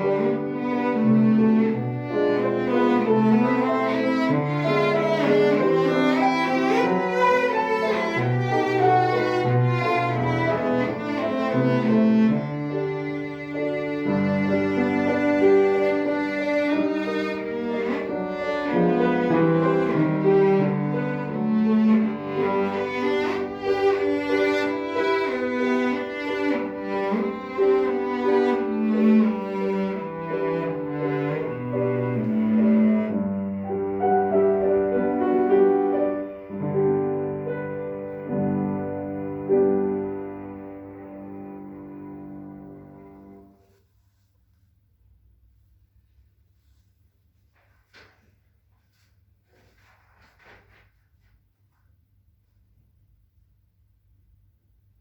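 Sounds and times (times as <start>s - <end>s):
piano accompaniment: 0.0s - 43.7s
cello melody: 0.0s - 43.9s.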